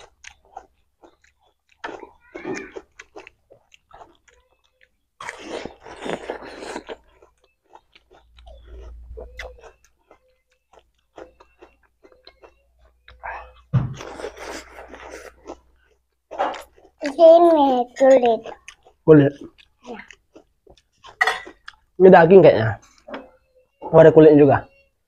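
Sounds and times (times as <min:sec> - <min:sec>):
crunching bites of fruit: 0:00.0 - 0:09.9.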